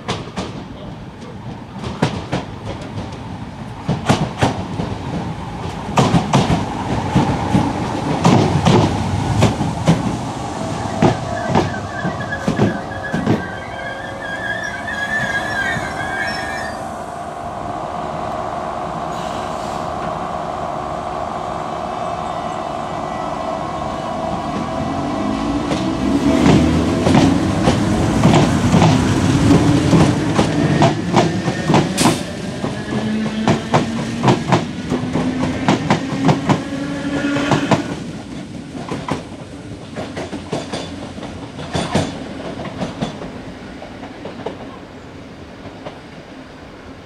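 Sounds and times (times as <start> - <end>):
train wheels clicking over rail joints: 0.0 - 10.2, 25.6 - 36.7, 37.3 - 44.8
train whine: 0.0 - 47.0.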